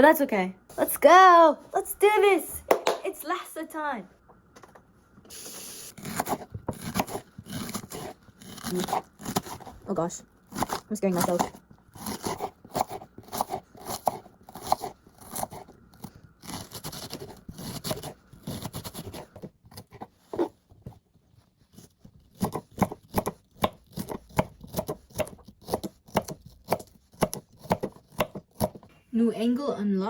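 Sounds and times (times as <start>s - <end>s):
knife chopping on cutting board: 6.0s - 9.7s, 10.5s - 20.5s, 21.8s - 28.9s.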